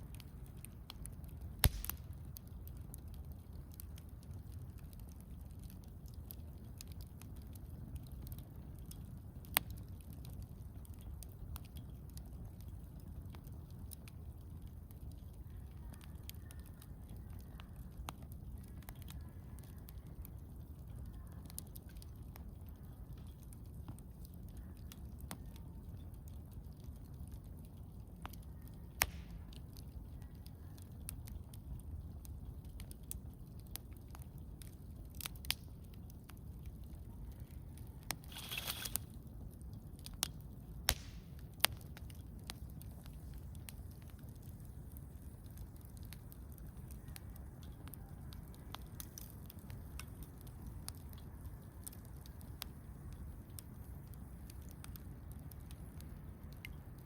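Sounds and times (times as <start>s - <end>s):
campfire crackling: 0.0s - 57.0s
wood fire popping: 0.0s - 57.0s.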